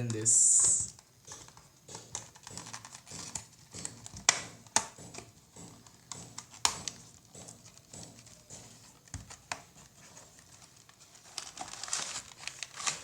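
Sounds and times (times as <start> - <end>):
sharp cardboard snaps: 0.9 - 10.0
cardboard packaging rustling: 5.9 - 13.0.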